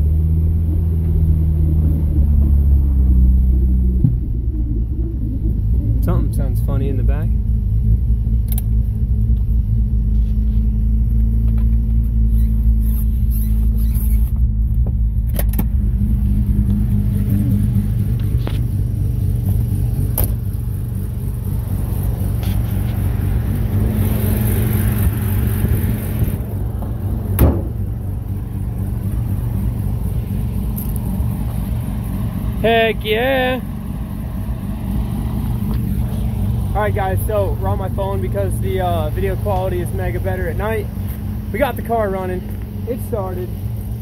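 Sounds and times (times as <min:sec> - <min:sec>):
rotary engine idling: 0:00.0 - 0:44.0
sharp clicks and knocks: 0:26.2 - 0:27.9.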